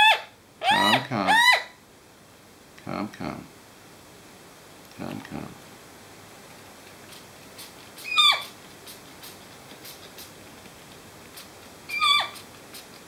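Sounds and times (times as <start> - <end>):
bird harsh squawks: 0.0 - 1.7, 8.0 - 8.5, 11.9 - 12.4.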